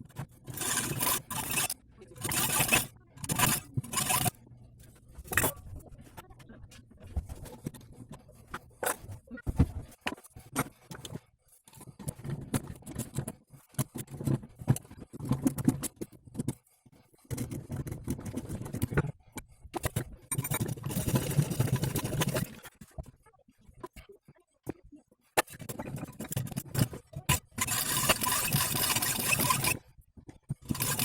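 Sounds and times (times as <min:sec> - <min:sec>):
metal rasping: 0:00.2 - 0:04.4, 0:25.5 - 0:29.8, 0:30.6 - 0:31.0
hand tools clicking and knocking: 0:30.6 - 0:31.0.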